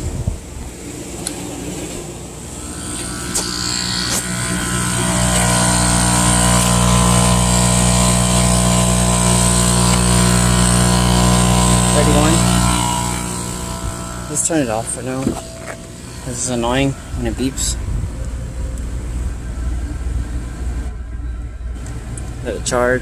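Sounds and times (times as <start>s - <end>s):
motor humming: 2.3s - 19.8s.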